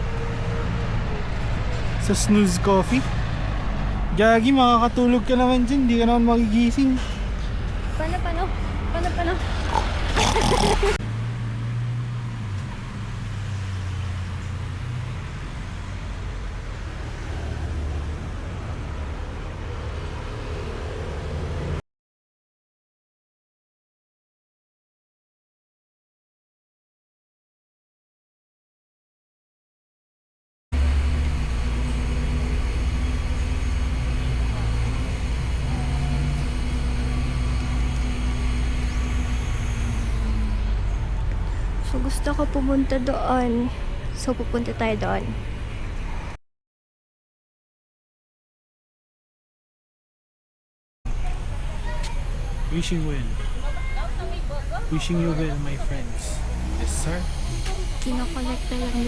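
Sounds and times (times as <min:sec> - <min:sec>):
road traffic noise: 0:00.0 - 0:21.8, 0:30.8 - 0:46.4, 0:51.1 - 0:59.0
vehicle engine humming: 0:00.0 - 0:21.8, 0:30.8 - 0:46.3, 0:51.1 - 0:59.0.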